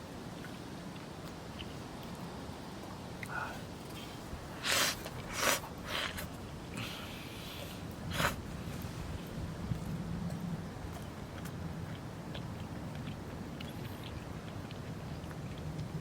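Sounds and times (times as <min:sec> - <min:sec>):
person slurping food: 0:03.3 - 0:08.4.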